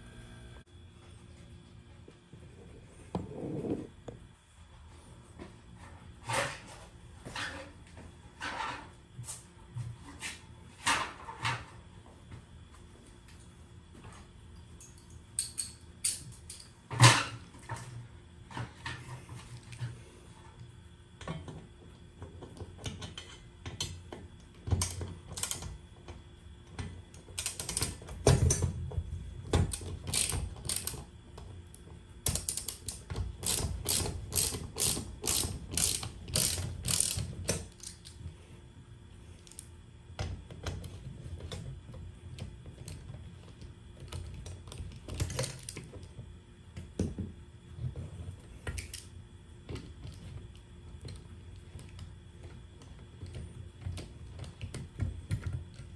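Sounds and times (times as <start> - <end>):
ratchet wrench clicking: 24.8 - 25.6, 27.4 - 28.0, 29.7 - 31.0, 32.3 - 38.1.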